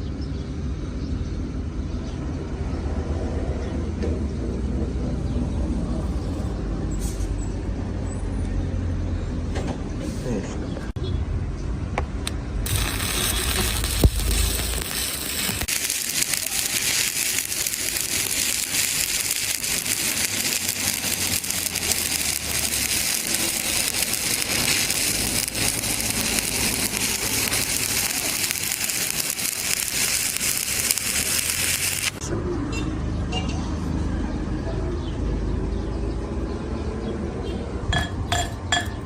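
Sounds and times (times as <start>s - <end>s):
welding arc crackling: 12.6s - 32.2s.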